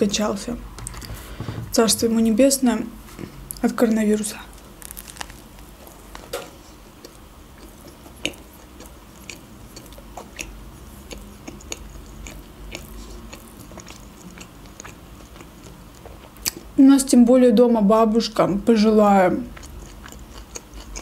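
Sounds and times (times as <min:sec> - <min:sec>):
wet chewing mouth clicks: 0:07.0 - 0:16.7, 0:19.5 - 0:21.0.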